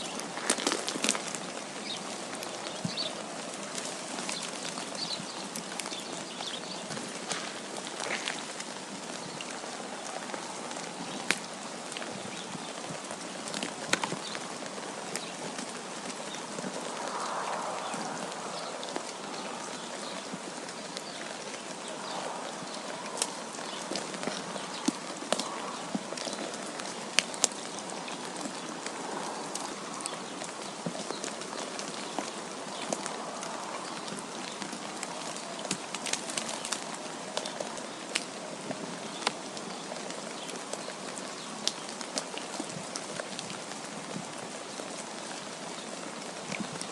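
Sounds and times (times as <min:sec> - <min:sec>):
snow pattering on surfaces: 0:00.0 - 0:46.9
wind hissing in snowstorm: 0:13.8 - 0:24.8.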